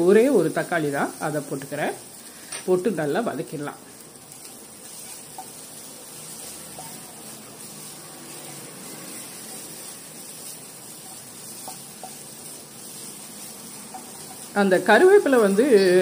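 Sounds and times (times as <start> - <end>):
vegetables sizzling in oil: 0.0 - 16.0
spatula tapping pan: 4.3 - 8.4, 9.1 - 15.5.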